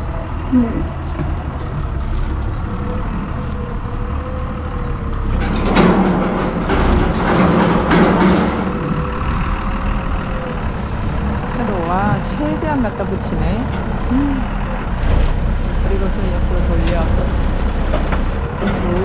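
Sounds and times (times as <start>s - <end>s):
forklift engine running: 0.0s - 19.0s.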